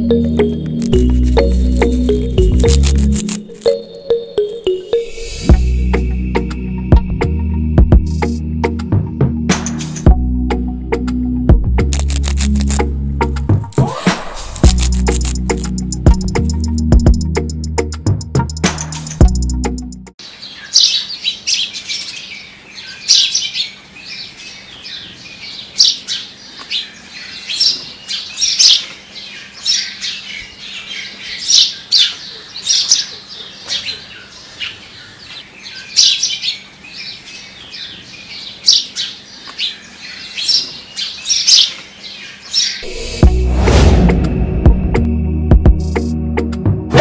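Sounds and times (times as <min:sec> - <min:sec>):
small birds chirping: 0:20.2 - 0:42.9.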